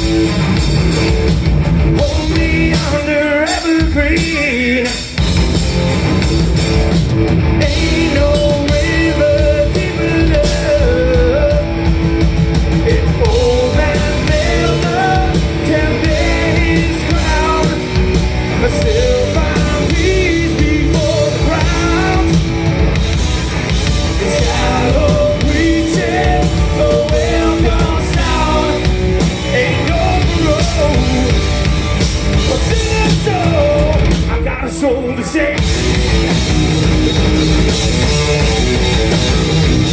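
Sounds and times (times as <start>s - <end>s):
bass guitar: 0.0s - 39.9s
drum kit: 0.0s - 39.9s
guitars: 0.0s - 39.9s
lead vocal singing: 1.9s - 5.2s, 7.6s - 11.9s, 12.7s - 36.0s.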